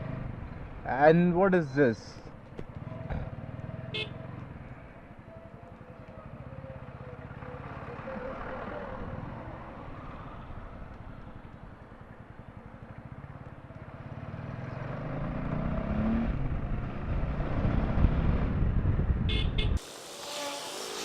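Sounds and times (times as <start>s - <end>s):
motorcycle engine running: 2.4s - 9.7s, 10.6s - 15.6s.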